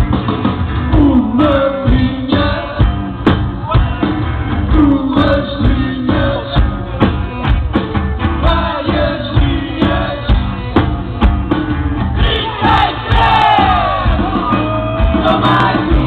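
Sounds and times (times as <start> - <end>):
drums beating: 0.0 - 16.0
rock band playing live: 0.0 - 16.0
person singing: 0.9 - 3.0, 4.7 - 7.0, 12.2 - 16.0.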